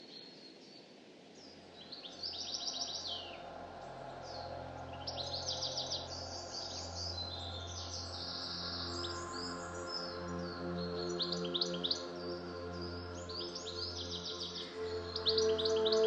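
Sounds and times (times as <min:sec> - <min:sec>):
songbirds trilling: 0:00.0 - 0:16.0.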